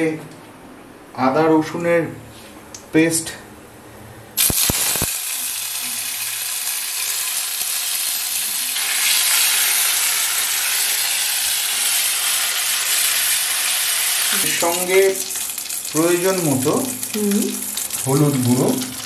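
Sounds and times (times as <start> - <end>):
paste sizzling in hot oil: 4.4 - 19.0.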